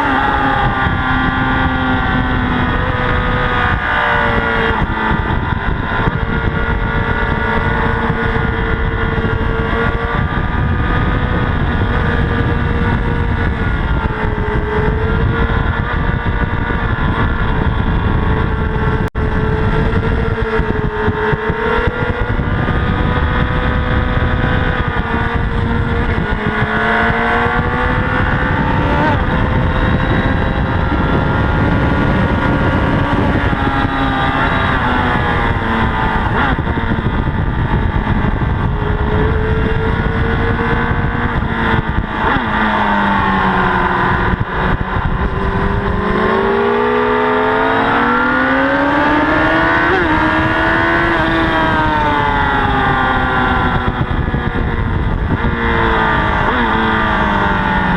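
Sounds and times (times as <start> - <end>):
motorcycle engine revving: 0.0 - 57.9
wind rush: 0.0 - 57.9.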